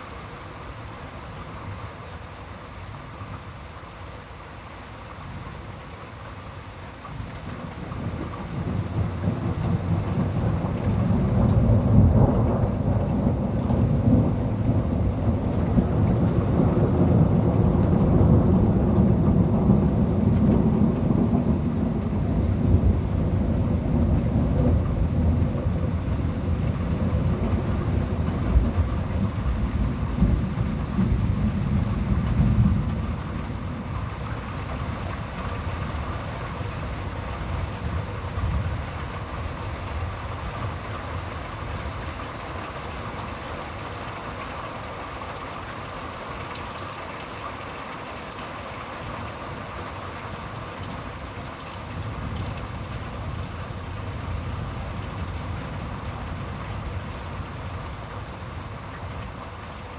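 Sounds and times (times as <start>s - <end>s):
steady rain: 0.0s - 59.9s
thunder rumbling: 7.9s - 42.1s.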